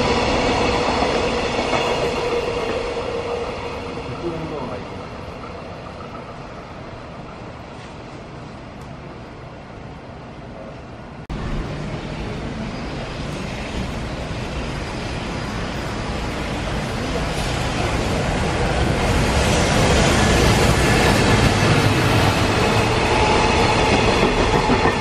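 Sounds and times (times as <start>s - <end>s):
electric locomotive running noise: 11.4s - 25.0s.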